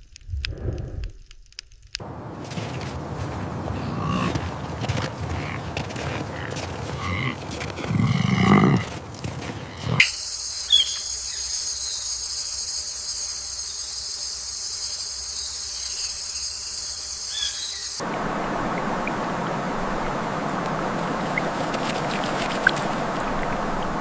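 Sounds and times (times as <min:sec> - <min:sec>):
insects droning: 0:02.0 - 0:24.0
animal growl: 0:05.2 - 0:09.0
faint chirps: 0:09.8 - 0:23.2.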